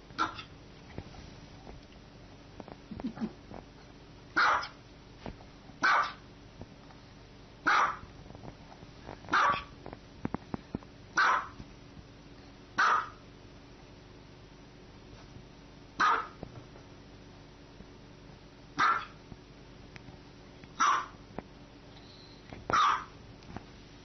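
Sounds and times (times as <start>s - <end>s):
small dog barking: 0.2s - 0.5s, 4.4s - 4.8s, 5.8s - 6.2s, 7.6s - 8.1s, 9.3s - 9.7s, 11.2s - 11.6s, 12.8s - 13.2s, 16.0s - 16.4s, 18.8s - 19.2s, 20.8s - 21.2s, 22.7s - 23.2s.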